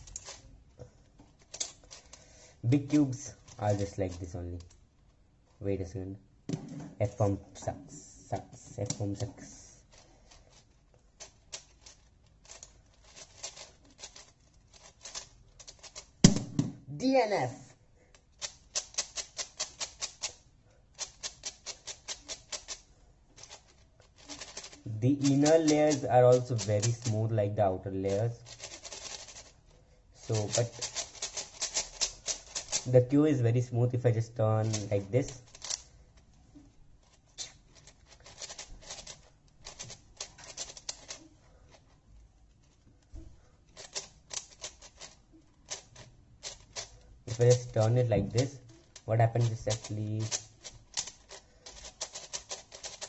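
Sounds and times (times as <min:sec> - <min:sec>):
speed cube plastic clicks: 0:00.0 - 0:00.4, 0:01.4 - 0:02.3, 0:08.6 - 0:09.3, 0:09.9 - 0:16.6, 0:18.2 - 0:22.8, 0:23.4 - 0:27.2, 0:28.4 - 0:29.6, 0:30.3 - 0:32.9, 0:34.6 - 0:35.9, 0:37.0 - 0:41.9, 0:43.7 - 0:53.0.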